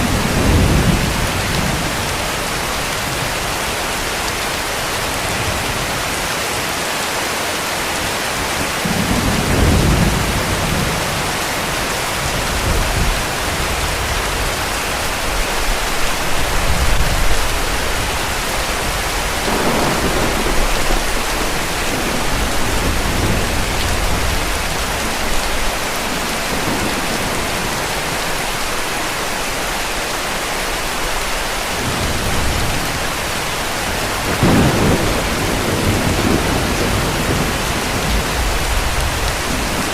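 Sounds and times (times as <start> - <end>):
distant thunder rumbling: 0.0 - 3.4, 16.2 - 28.3, 31.8 - 39.9
heavy rain falling: 0.0 - 39.9.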